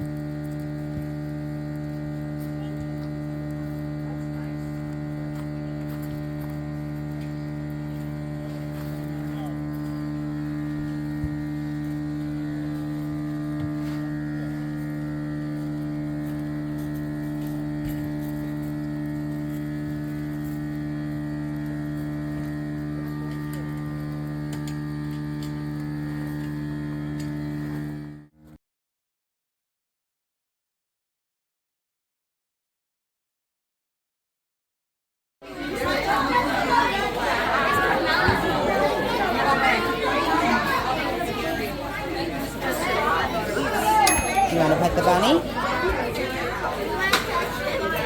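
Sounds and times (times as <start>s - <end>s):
machine hum: 0.0s - 28.5s.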